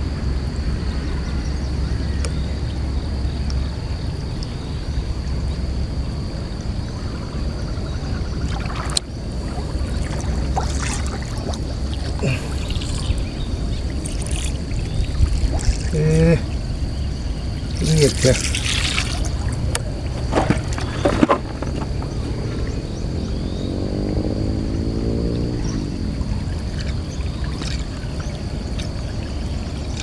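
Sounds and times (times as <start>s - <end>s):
water trickling and splashing: 7.8s - 30.0s.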